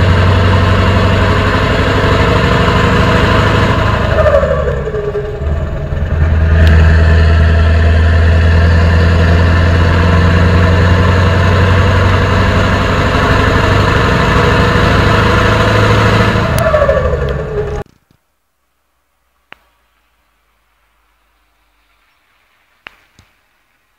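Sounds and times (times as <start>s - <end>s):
diesel truck engine running: 0.0s - 17.8s.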